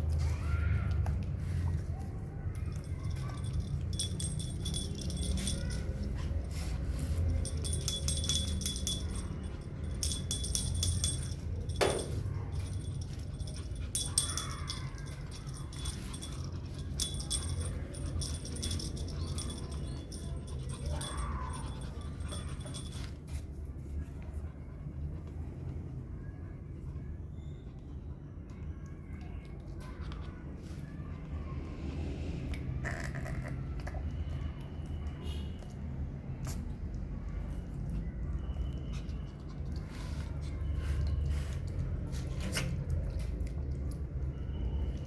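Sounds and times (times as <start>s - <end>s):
small bell jingling: 2.7s - 23.2s.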